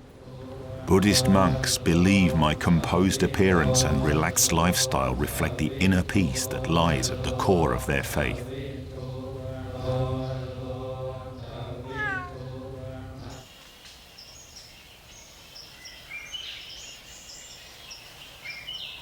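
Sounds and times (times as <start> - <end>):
cat meowing: 11.8 - 12.4.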